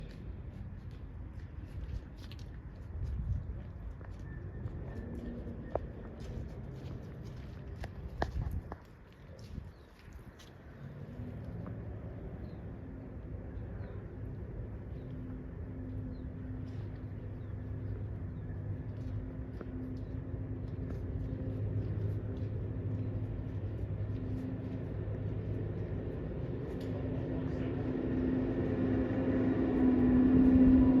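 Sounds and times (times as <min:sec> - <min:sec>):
engine humming: 0:10.5 - 0:31.0.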